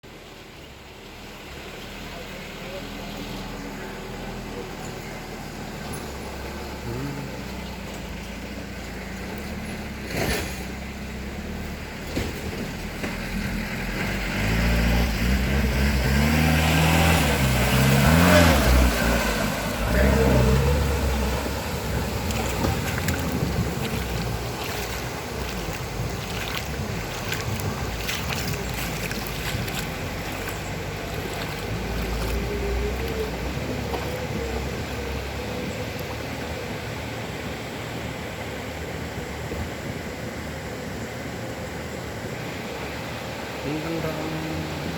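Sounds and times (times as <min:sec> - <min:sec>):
motor engine running: 0:19.8 - 0:35.8.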